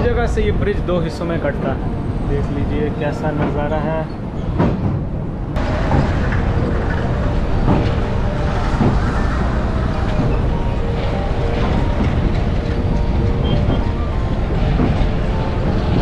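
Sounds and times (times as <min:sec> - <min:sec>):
rushing air: 0:05.1 - 0:16.0.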